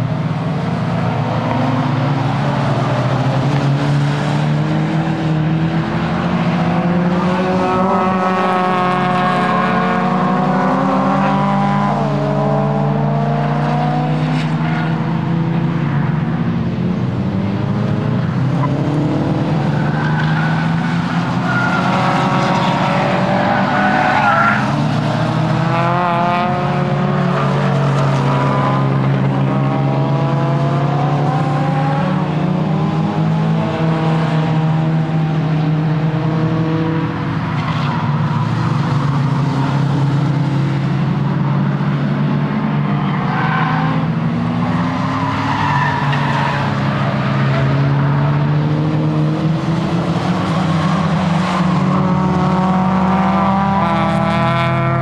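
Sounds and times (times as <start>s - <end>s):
car engine revving hard: 46.6s - 55.0s.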